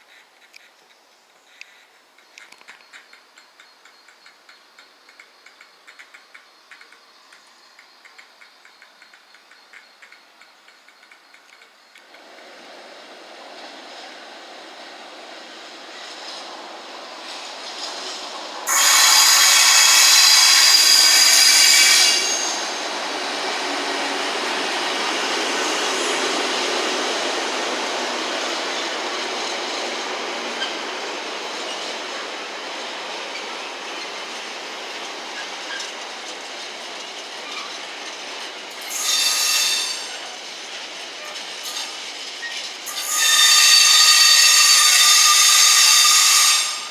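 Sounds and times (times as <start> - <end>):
train rumbling: 1.4 - 46.9
loud high-pitched tone: 18.7 - 22.8, 38.9 - 40.1, 42.9 - 46.9.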